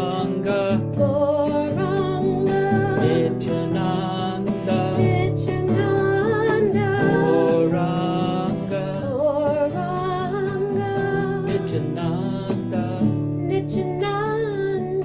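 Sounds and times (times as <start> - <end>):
voices chanting a mantra: 6.0 - 8.8.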